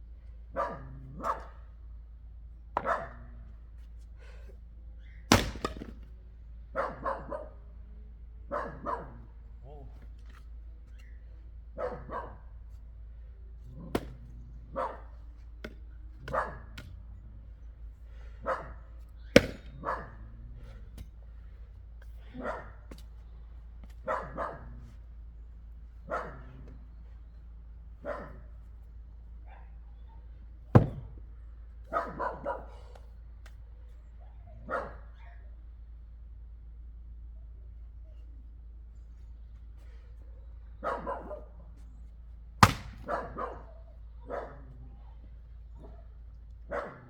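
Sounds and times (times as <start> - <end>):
dog barking: 0.5 - 1.8, 2.8 - 3.4, 6.7 - 7.6, 8.5 - 9.3, 11.8 - 12.5, 13.8 - 15.2, 16.2 - 16.8, 18.4 - 18.9, 19.6 - 20.7, 22.2 - 22.9, 24.0 - 24.9, 26.0 - 26.8, 28.0 - 28.5, 29.4 - 30.3, 31.9 - 33.0, 34.2 - 35.4, 40.8 - 41.7, 43.0 - 45.2, 45.8 - 47.0
sharp knocks: 19.4 - 19.8, 30.8 - 31.1.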